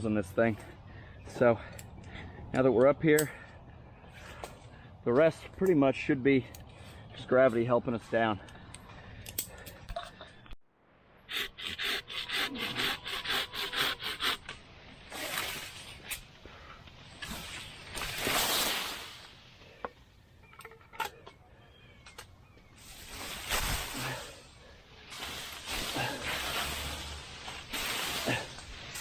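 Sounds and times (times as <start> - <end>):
saw cutting a branch: 11.3 - 16.2, 25.1 - 29.0
leaves and branches rustling: 14.6 - 29.0.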